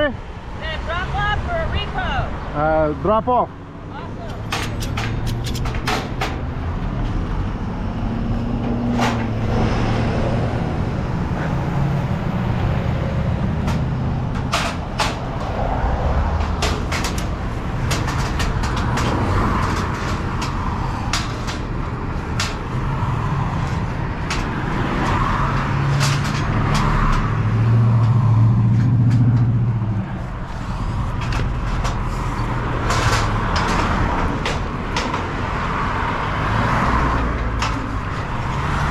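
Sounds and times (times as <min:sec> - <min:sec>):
clicks and rattles: 0:04.3 - 0:06.5, 0:13.6 - 0:15.5, 0:16.4 - 0:22.7, 0:25.8 - 0:27.3, 0:31.2 - 0:35.3.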